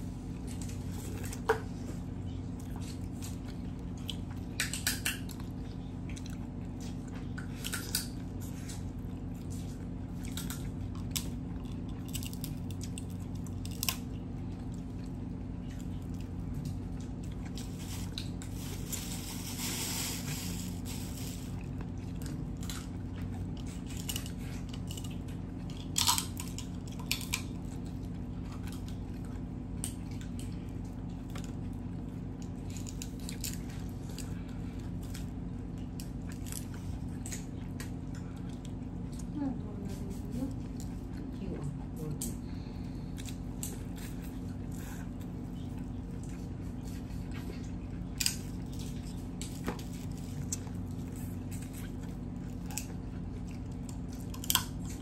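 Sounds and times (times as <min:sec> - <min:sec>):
steady low hum: 0:00.0 - 0:55.0
person biting and chewing: 0:02.5 - 0:30.6, 0:43.0 - 0:55.0.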